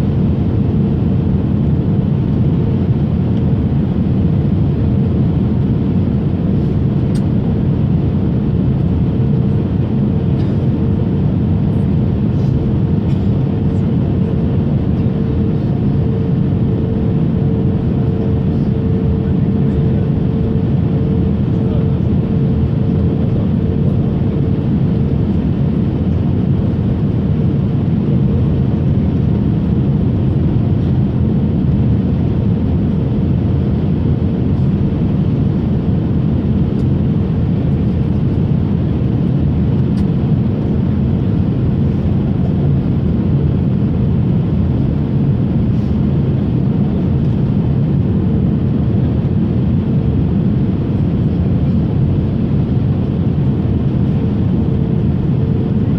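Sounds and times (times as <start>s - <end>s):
airliner engine and airflow rumble: 0.0s - 55.9s.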